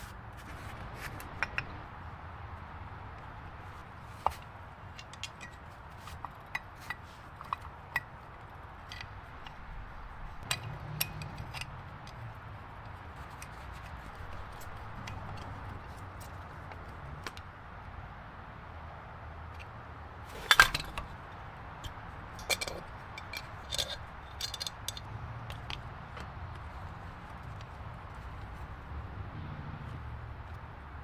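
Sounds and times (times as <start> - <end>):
tools clicking and clinking: 4.3 - 8.2, 10.4 - 17.4, 20.3 - 21.2, 21.8 - 26.6.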